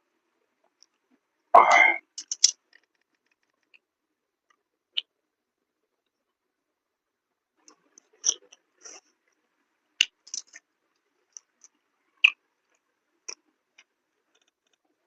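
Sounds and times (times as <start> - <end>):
chewing with wet mouth clicks: 2.2 - 2.8, 10.0 - 10.6.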